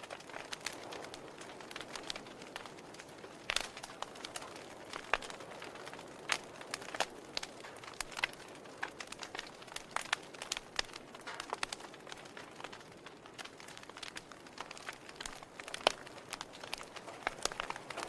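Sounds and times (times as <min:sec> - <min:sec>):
soft steady fire hiss: 0:00.0 - 0:18.0
wood fire crackling and popping: 0:00.0 - 0:18.0.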